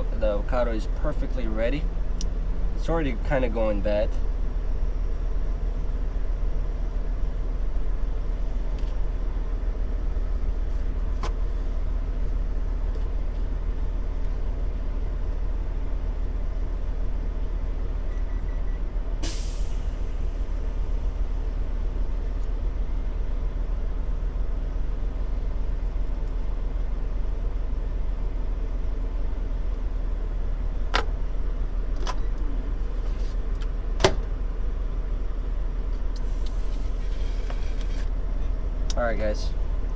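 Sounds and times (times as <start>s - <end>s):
truck engine idling: 0.0s - 39.9s
sharp hiss of air: 19.2s - 20.4s.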